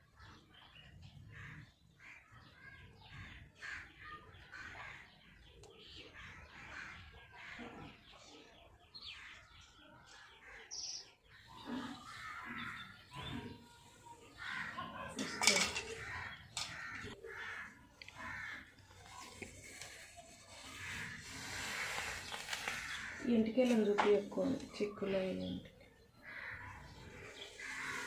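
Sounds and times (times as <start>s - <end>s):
crow-like caws: 11.8s - 13.0s, 14.3s - 19.7s, 20.6s - 23.3s, 26.2s - 28.0s.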